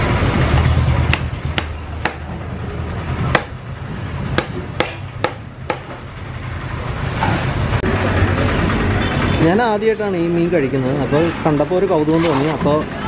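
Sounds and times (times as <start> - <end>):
knife chopping on wooden block: 1.1 - 2.3, 3.3 - 3.6, 4.4 - 6.0.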